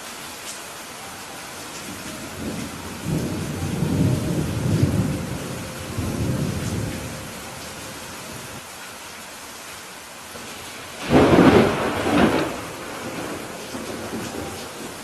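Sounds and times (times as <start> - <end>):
rain hissing: 0.0 - 15.0
thunder rumbling: 1.8 - 8.6, 10.4 - 15.0.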